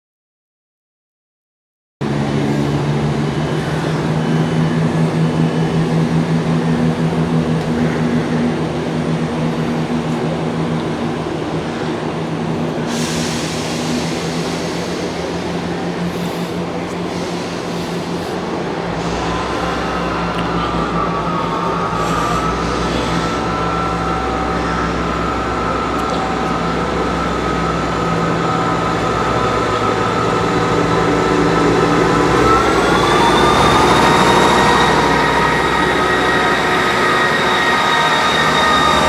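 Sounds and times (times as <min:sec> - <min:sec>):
diesel engine running: 0:02.0 - 0:39.0
hiss: 0:12.9 - 0:20.3.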